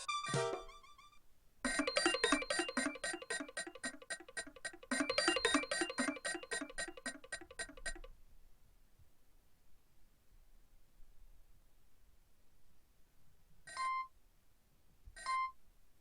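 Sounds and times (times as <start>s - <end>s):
electronic ringtone beeping melody: 1.7s - 8.1s.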